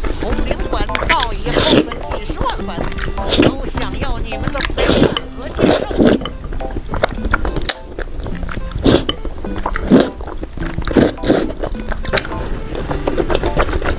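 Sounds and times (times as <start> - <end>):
bites and slurps: 0.0 - 13.9
person chewing: 0.0 - 13.9
quiet background music: 0.0 - 13.9.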